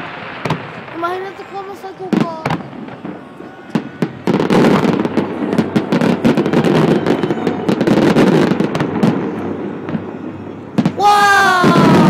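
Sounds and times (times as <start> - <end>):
fireworks and firecrackers banging: 0.0 - 12.0.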